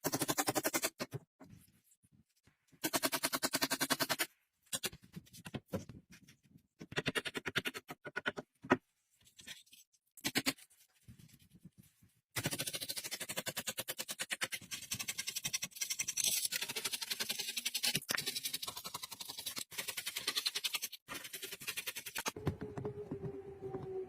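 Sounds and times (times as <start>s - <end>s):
faint falling tone: 22.4s - 24.0s.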